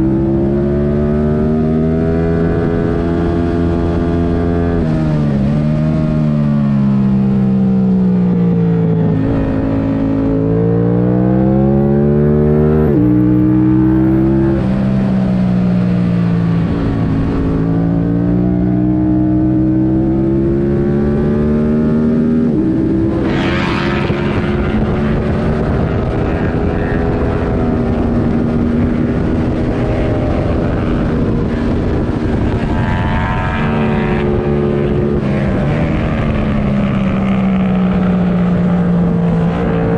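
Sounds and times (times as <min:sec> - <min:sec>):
motorcycle engine revving: 0:00.0 - 0:39.9
wind rush: 0:08.6 - 0:39.9.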